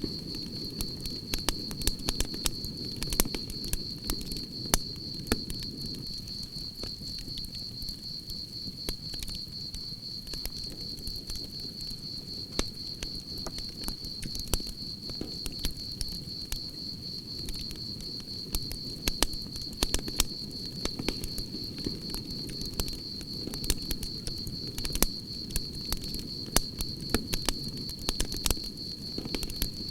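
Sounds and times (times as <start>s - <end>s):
campfire crackling: 0.0s - 29.9s
crickets chirping: 0.0s - 29.9s.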